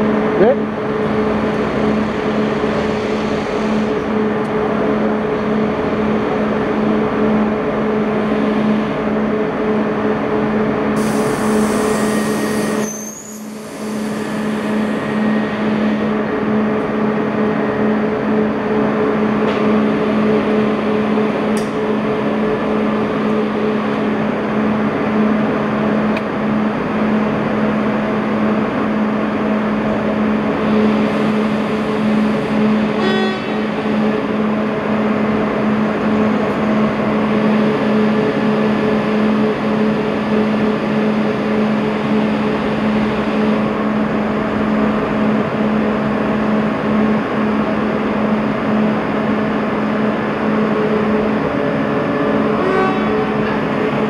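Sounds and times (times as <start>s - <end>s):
train droning hum: 0.0s - 54.0s.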